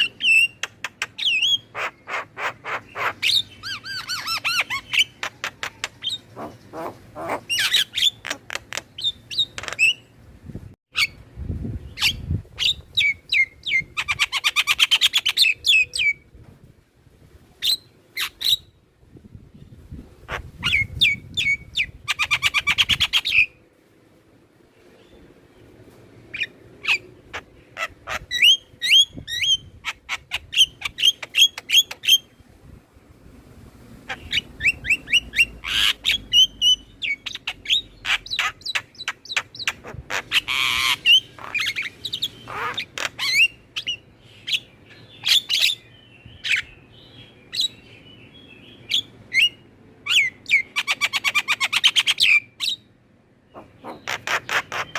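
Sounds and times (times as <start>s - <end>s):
starlings chirping: 0.0s - 10.2s, 24.8s - 32.4s, 34.0s - 54.9s.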